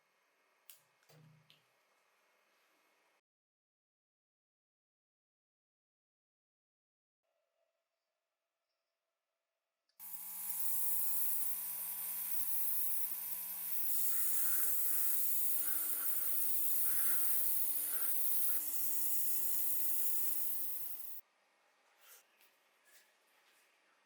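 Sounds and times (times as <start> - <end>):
small electric motor whirring: 10.0 - 21.2.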